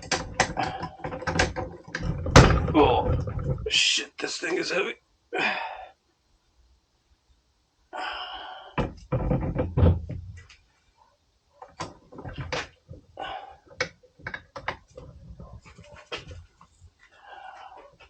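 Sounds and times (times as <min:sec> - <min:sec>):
metal parts knocking together: 0:00.0 - 0:03.7
heavy thuds: 0:02.0 - 0:03.7.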